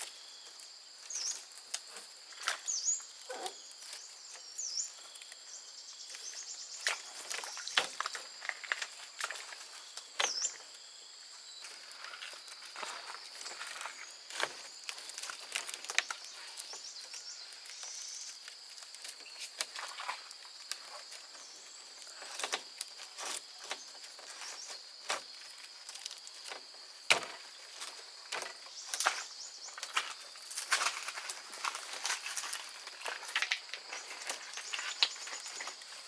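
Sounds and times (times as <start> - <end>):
wood and twigs snapping: 1.0 - 10.7, 11.7 - 36.0
sharp wood crack: 26.0 - 27.4.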